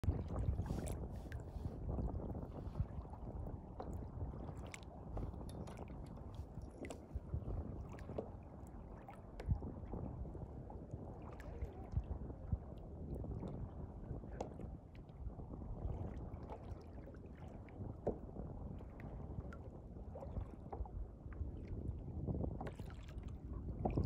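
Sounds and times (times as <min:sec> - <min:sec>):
water noise: 0:00.0 - 0:14.6
wind buffeting microphone: 0:00.0 - 0:16.6, 0:17.4 - 0:24.0.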